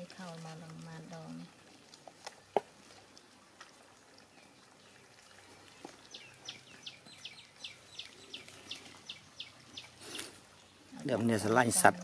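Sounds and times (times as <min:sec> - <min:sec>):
bird chirping: 0:04.3 - 0:10.8.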